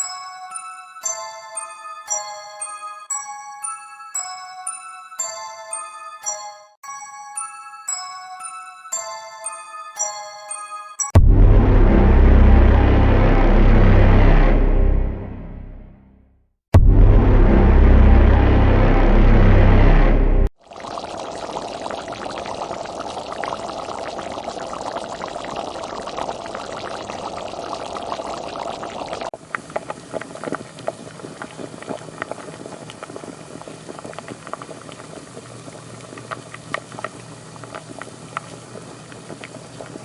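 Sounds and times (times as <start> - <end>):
liquid hissing and bubbling: 20.6 - 40.0
cooking crackle with sharp pops: 29.4 - 40.0.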